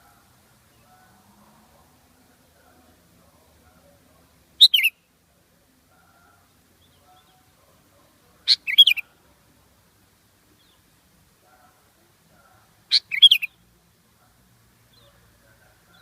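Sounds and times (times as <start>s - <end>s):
bird calling: 4.6s - 5.0s, 8.4s - 9.2s, 12.9s - 13.6s.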